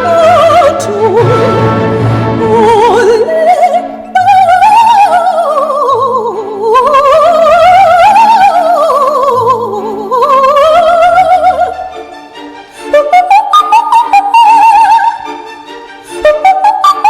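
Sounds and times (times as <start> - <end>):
sustained accompaniment: 0.0 - 4.2
woman singing with vibrato: 0.0 - 11.9, 12.9 - 15.3, 16.2 - 17.0.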